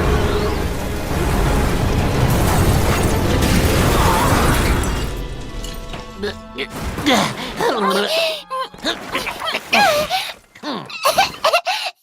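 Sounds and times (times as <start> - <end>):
rush of wind and debris: 0.0 - 5.7
music: 0.0 - 10.3.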